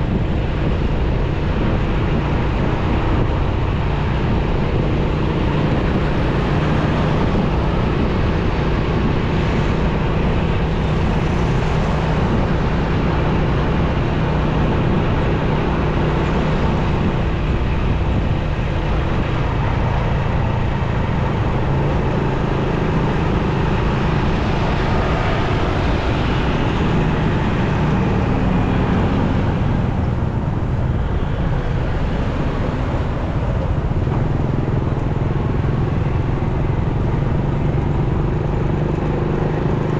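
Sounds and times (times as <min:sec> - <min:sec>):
motorcycle engine running: 0:00.0 - 0:39.9
road noise rushing: 0:00.0 - 0:39.9.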